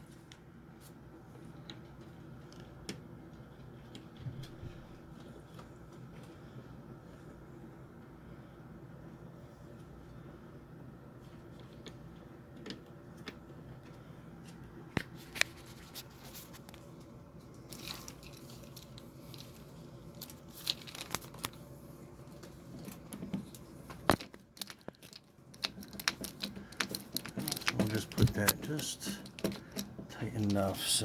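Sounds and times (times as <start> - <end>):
steady low hum: 0.0 - 31.0
hands clicking and rustling: 11.3 - 31.0.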